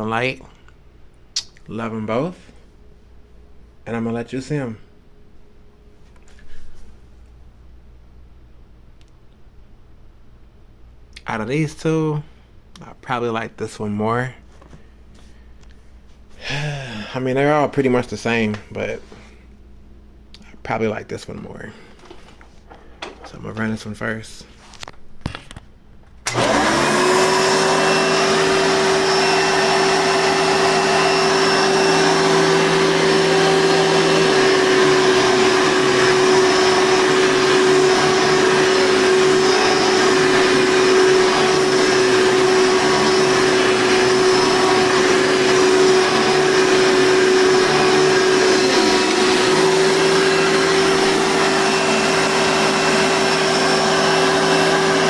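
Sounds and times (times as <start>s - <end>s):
vacuum cleaner motor running: 26.3s - 55.0s.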